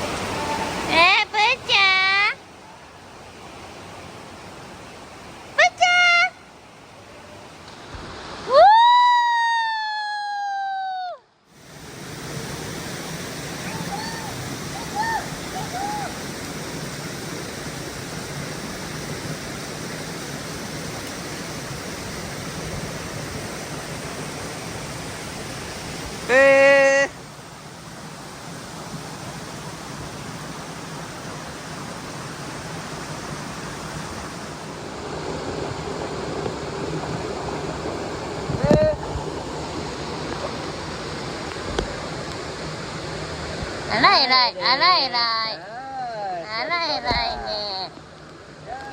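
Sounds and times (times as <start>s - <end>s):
falling water rushing: 0.0s - 9.8s, 11.5s - 48.9s
long high vocal call: 13.6s - 16.3s.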